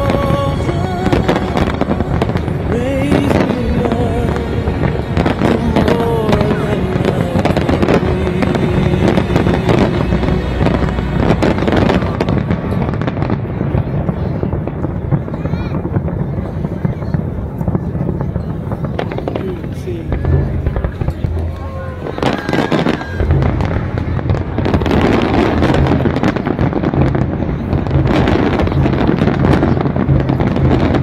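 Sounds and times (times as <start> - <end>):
music: 0.0 - 13.8, 20.1 - 31.0
fireworks bangs and crackle: 0.0 - 31.0.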